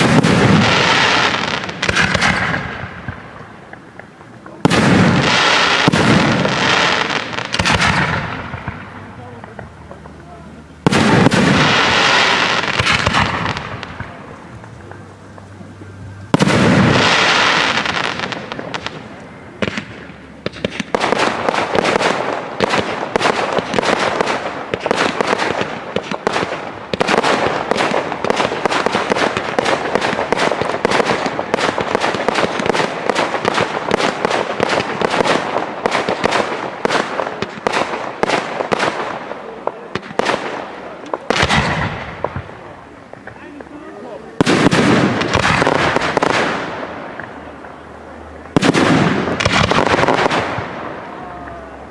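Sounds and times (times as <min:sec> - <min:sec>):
fireworks bangs and crackling: 0:00.0 - 0:51.9
fireworks burst: 0:00.0 - 0:51.9.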